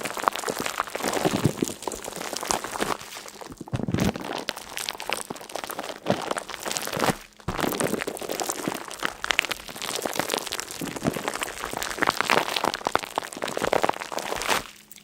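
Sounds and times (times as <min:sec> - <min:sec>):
dense crackling and crinkling: 0:00.0 - 0:15.0.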